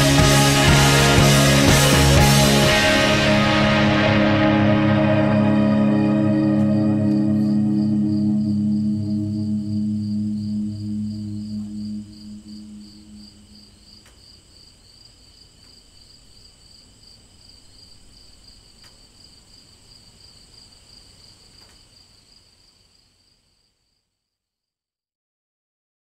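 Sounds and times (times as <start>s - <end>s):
crickets trilling: 6.4s - 23.8s.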